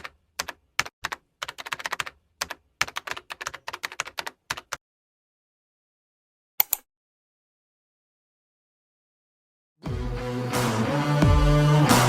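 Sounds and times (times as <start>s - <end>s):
keyboard typing clicks: 6.6s - 6.9s.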